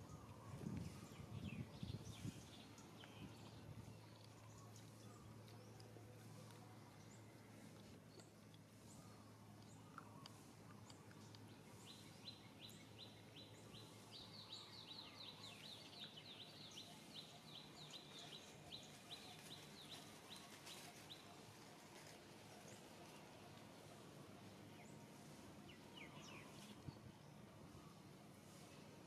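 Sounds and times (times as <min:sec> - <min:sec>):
bird chirping: 0:08.1 - 0:23.6.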